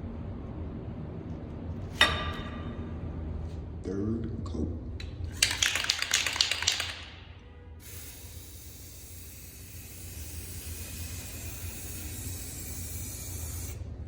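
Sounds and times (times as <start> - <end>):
spray can rattling: 5.3 - 13.8
spray paint hissing: 5.4 - 7.0, 7.8 - 13.9.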